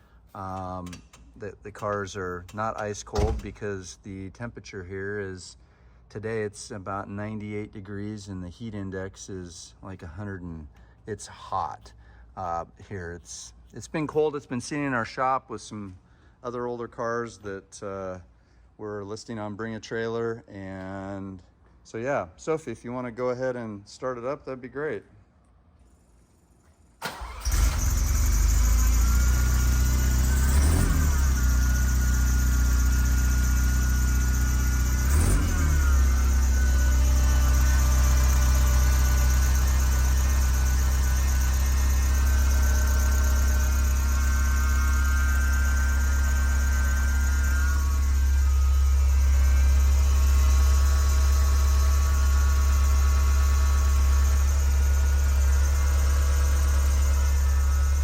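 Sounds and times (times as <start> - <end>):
engine revving in short blips: 27.0 - 32.1, 34.6 - 52.3
car engine starting and idling: 27.0 - 58.0.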